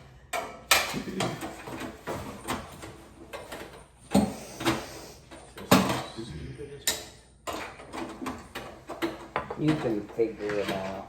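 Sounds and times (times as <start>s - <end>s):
parts and packaging rustling: 1.0s - 6.2s.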